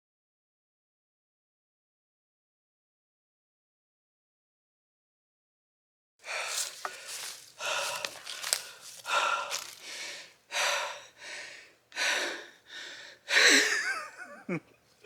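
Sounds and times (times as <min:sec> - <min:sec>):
man panting hard: 0:06.2 - 0:13.7.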